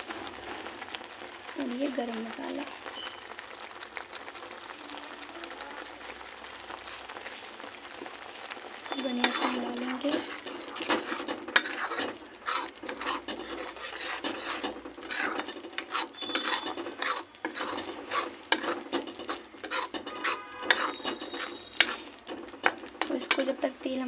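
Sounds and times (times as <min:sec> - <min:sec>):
spatula scraping in a pan: 0:00.2 - 0:03.4, 0:06.5 - 0:24.0
spatula knocking against pan: 0:10.2 - 0:23.5.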